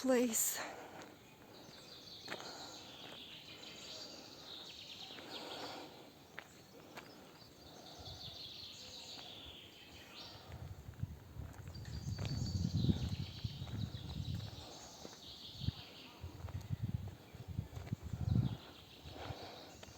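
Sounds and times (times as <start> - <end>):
birds chirping: 0.0 - 19.9.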